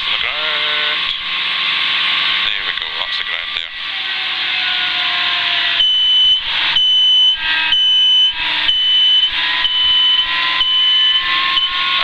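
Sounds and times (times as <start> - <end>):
warning horn beeping: 3.7 - 12.0.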